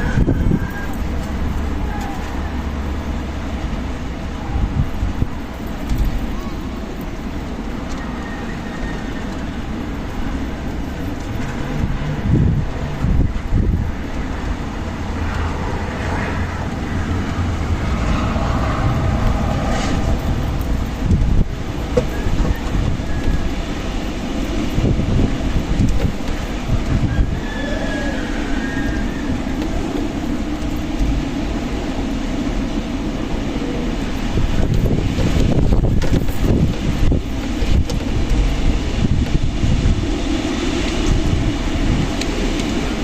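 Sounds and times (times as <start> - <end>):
faint high wind whistle: 0.0 - 43.0
wind buffeting microphone: 0.0 - 43.0.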